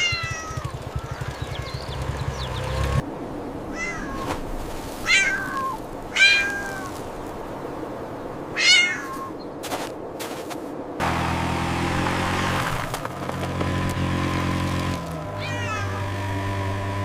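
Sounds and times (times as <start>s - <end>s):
cat meowing: 0.0s - 0.7s, 3.7s - 4.3s, 5.0s - 7.0s, 8.6s - 9.3s, 15.4s - 16.0s.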